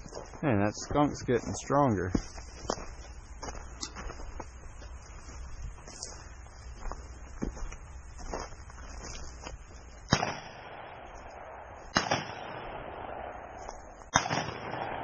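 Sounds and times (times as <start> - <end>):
shotgun shots with echo: 10.1 - 15.0.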